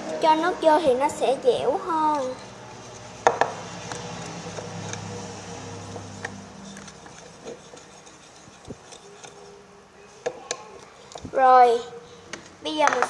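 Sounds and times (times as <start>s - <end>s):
spoon stirring slime: 1.9s - 9.6s.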